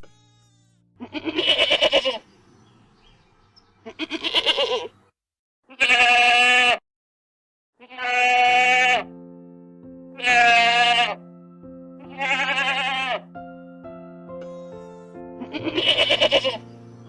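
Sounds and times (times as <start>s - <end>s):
farm animal bleating: 0.0s - 2.4s, 3.8s - 5.1s, 5.7s - 6.8s, 7.8s - 9.1s, 10.2s - 11.2s, 12.0s - 13.4s, 14.4s - 16.8s
soft sustained music notes: 9.1s - 17.0s.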